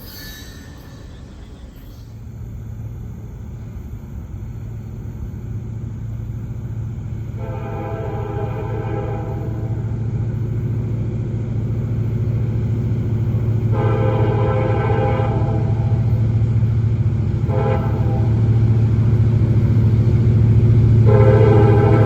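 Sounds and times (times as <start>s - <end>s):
diesel locomotive rumbling: 0.0s - 22.0s
train air horn blasts: 7.3s - 10.0s, 13.7s - 16.2s, 17.4s - 18.6s, 21.0s - 22.0s.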